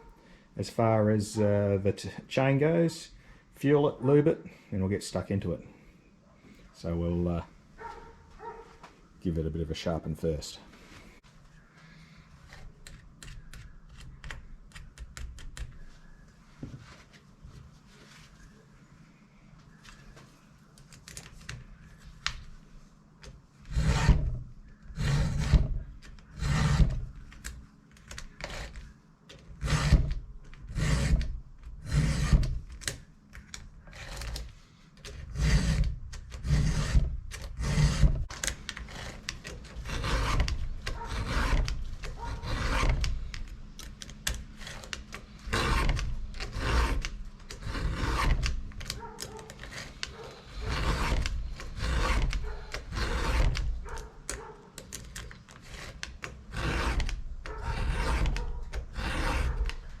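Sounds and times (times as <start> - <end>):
file rasping on chainsaw chain: 23.7 - 24.2, 25.0 - 25.7, 26.4 - 26.9, 29.6 - 30.0, 30.7 - 31.2, 31.8 - 32.4, 35.3 - 38.1, 38.9 - 43.2, 44.6 - 54.0, 55.6 - 60.0.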